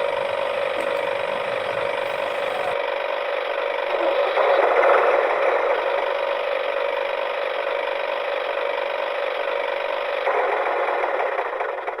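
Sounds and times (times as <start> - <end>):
toy tractor grinding and rattling: 0.0 - 2.8.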